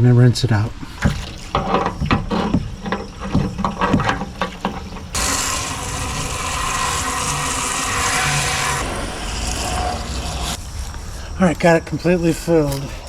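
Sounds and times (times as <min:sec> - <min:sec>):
knocks and clatter of handling: 0:01.0 - 0:05.2
water rushing into a tank: 0:05.2 - 0:09.8.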